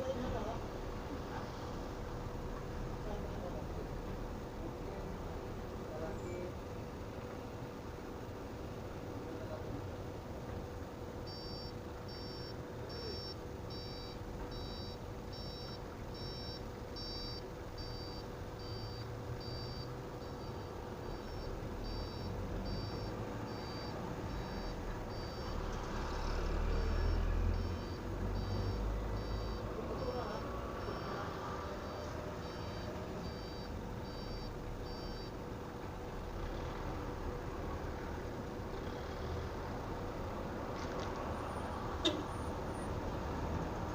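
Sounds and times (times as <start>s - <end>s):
low engine rumble: 0.0s - 43.9s
reversing alarm beeping: 11.3s - 35.4s.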